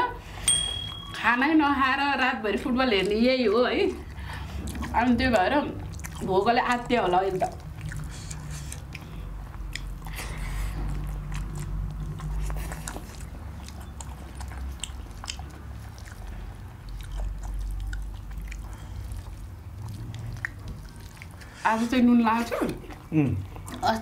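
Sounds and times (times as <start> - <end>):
low steady hum: 0.0 - 24.0
people chewing food: 2.0 - 24.0
wet mouth smacks and clicks: 7.4 - 10.2, 10.8 - 19.4, 20.0 - 21.4.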